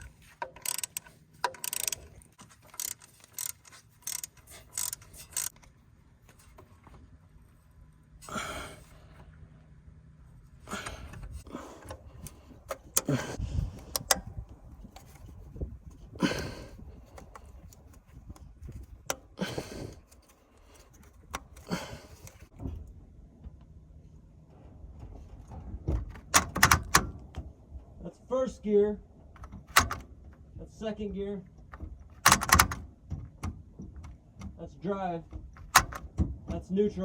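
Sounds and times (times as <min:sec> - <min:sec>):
metal tools clicking and clinking: 0:00.0 - 0:05.6.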